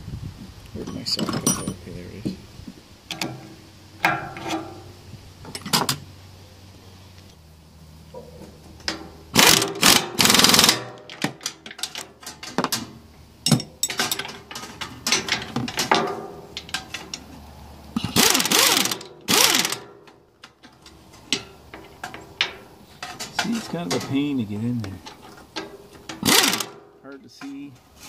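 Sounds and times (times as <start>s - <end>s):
metal tools clinking: 0.8s - 2.0s, 3.1s - 6.0s, 8.2s - 17.3s, 18.0s - 28.0s
socket wrench ratcheting: 9.4s - 12.1s, 18.0s - 19.9s, 26.1s - 26.8s.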